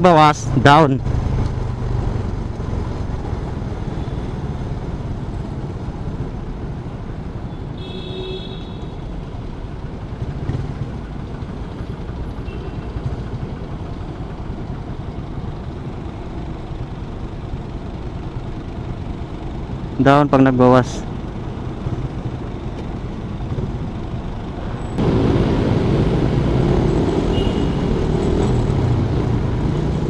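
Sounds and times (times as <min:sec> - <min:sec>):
motorcycle engine running: 0:09.7 - 0:19.8.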